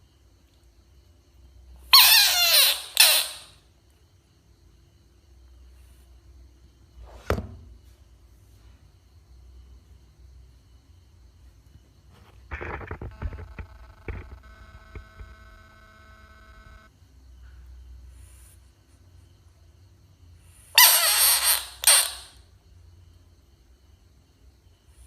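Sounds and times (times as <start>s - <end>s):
frog rasping call: 1.9s - 3.6s, 20.7s - 22.4s
faint steady tone: 7.6s - 20.7s.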